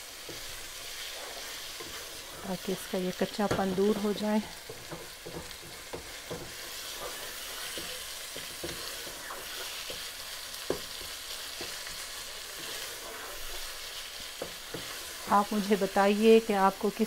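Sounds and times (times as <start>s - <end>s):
meat sizzling in oil: 0.0s - 17.0s
wooden spatula scraping pot: 0.2s - 16.1s
spatula knocking against pan: 3.4s - 6.8s.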